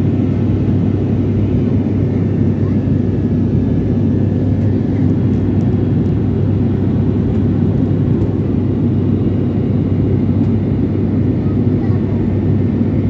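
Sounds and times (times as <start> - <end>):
airliner cabin engine drone: 0.0 - 13.0
constant low hum: 0.0 - 13.0.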